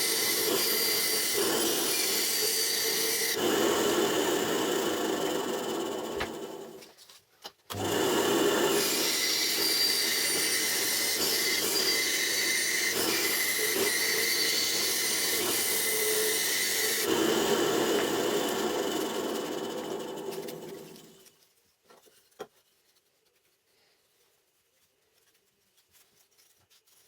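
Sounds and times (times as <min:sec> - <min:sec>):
band saw cutting: 0:00.0 - 0:06.8, 0:07.7 - 0:21.3.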